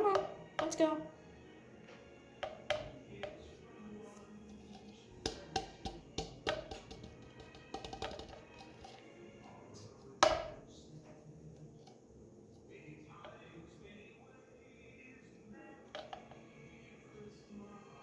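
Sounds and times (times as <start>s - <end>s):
glue container tapping on bowl: 0.0s - 1.0s, 1.8s - 3.6s, 4.2s - 10.8s, 12.6s - 13.6s, 15.8s - 16.5s.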